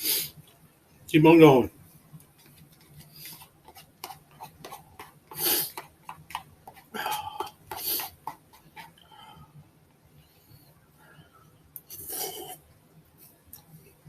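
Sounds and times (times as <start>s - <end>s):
noodle sucking sounds: 5.3s - 5.9s, 7.8s - 8.2s.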